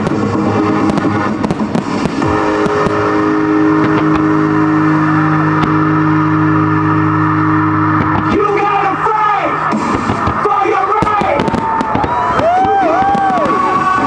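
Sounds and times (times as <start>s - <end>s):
firework bangs: 0.0s - 14.0s
long low chord: 2.2s - 9.8s.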